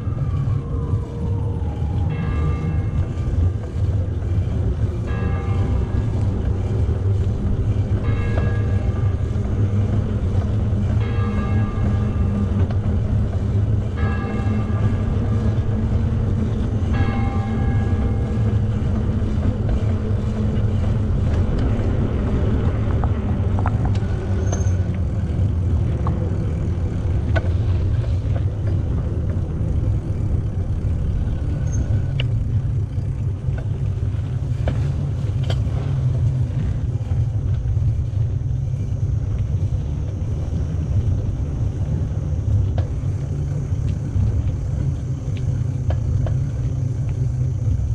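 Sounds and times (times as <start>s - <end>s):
wind and bicycle riding noise: 0.0s - 47.9s.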